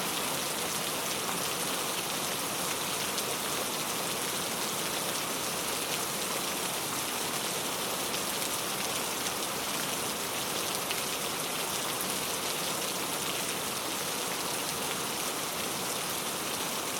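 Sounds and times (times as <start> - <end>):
heavy rainfall: 0.0 - 16.9.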